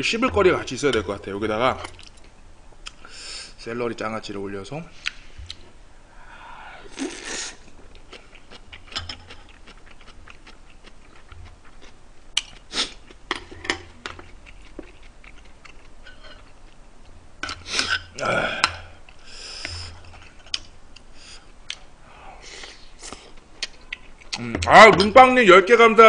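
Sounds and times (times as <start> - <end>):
wet mouth chewing sounds: 6.9 - 13.2, 14.0 - 18.2, 19.0 - 21.9.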